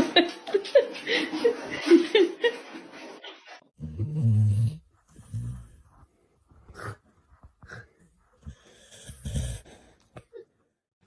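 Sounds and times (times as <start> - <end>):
dog breathing deeply: 4.9 - 10.2.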